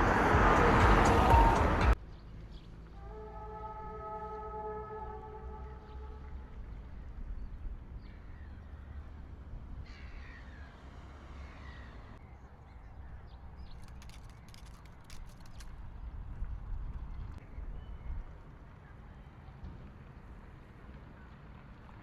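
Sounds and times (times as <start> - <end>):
outdoor rumble: 0.0 - 22.0
crow cawing: 9.9 - 10.7.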